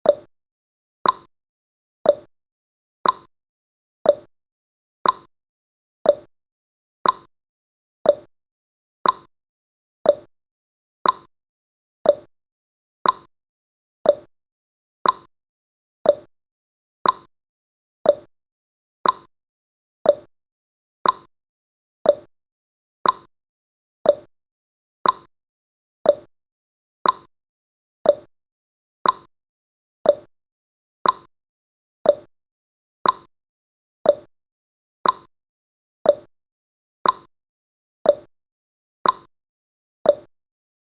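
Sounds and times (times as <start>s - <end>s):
clock ticking: 3.0s - 3.3s, 5.0s - 5.3s, 7.0s - 7.3s, 9.0s - 9.3s, 11.0s - 11.3s, 13.0s - 13.3s, 15.0s - 15.3s, 16.1s - 16.3s, 17.0s - 17.3s, 18.1s - 18.3s, 19.0s - 19.3s, 21.0s - 21.3s, 22.1s - 22.3s, 23.0s - 23.3s, 24.1s - 24.3s, 25.0s - 25.3s, 26.1s - 26.3s, 27.0s - 27.3s, 28.0s - 28.3s, 29.0s - 29.3s, 30.1s - 30.3s, 31.0s - 31.3s, 32.1s - 32.3s, 33.0s - 33.3s, 34.1s - 34.3s, 35.0s - 35.3s, 37.0s - 37.3s, 39.0s - 39.3s, 40.1s - 40.3s.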